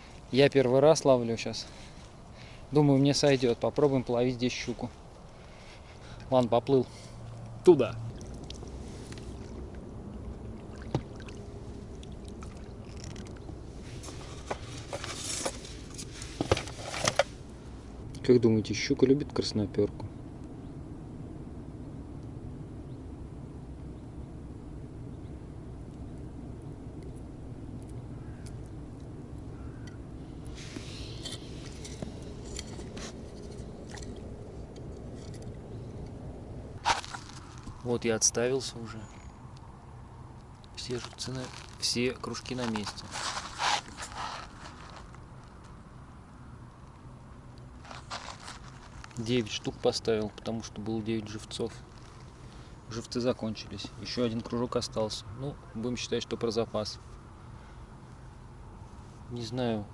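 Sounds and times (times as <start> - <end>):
steady low rumble: 0.0 - 59.9
water noise: 7.2 - 16.5, 30.5 - 37.8
oar splashes: 10.5 - 13.2
fishing gear scraping and clicking: 12.0 - 17.4, 30.7 - 36.1, 36.8 - 37.8, 41.0 - 45.2.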